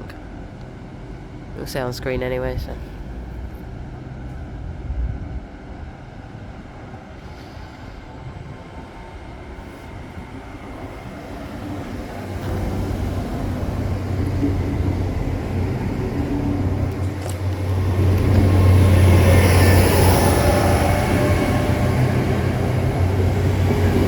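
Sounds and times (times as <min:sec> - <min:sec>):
diesel train engine drone: 0:00.0 - 0:24.0
train hiss: 0:06.3 - 0:24.0.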